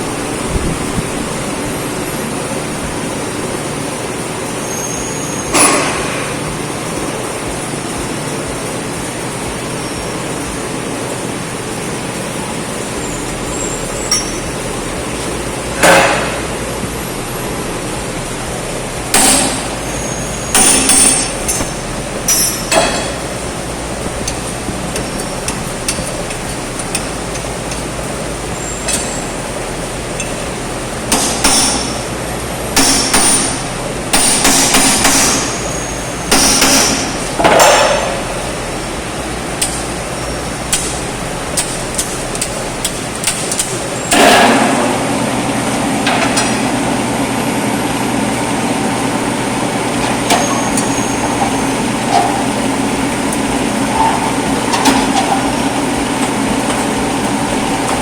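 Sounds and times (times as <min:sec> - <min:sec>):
low engine drone: 0:00.0 - 0:36.4.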